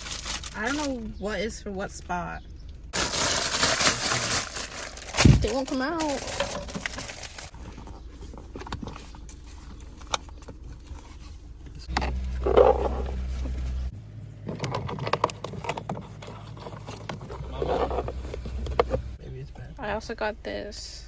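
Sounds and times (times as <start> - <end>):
low hum: 0.2 - 21.0
plastic parts clicking and scraping: 3.4 - 19.2.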